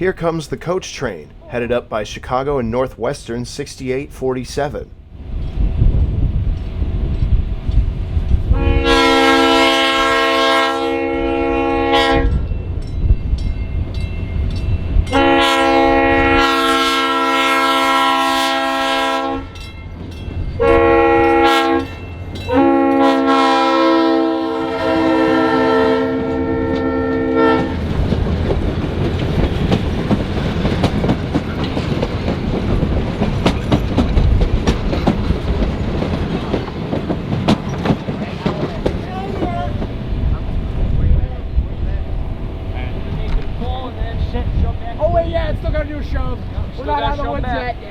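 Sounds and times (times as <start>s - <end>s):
train rumble: 0.0s - 47.9s
diesel locomotive horn: 8.4s - 12.5s, 15.1s - 19.7s, 20.6s - 27.9s
train wheel clatter: 12.3s - 16.7s, 27.6s - 40.6s, 43.0s - 47.9s.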